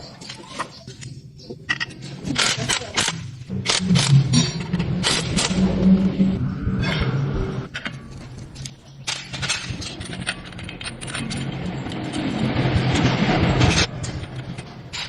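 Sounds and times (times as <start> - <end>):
harsh machine noise: 2.4 - 7.7, 10.0 - 15.0
low machine hum: 3.5 - 8.5
metal tools clinking and knocking: 7.7 - 12.3.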